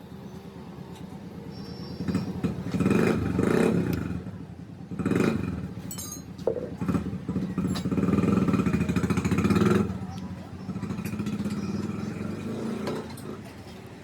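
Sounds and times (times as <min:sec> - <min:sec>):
motorcycle engine revving: 0:02.0 - 0:13.8.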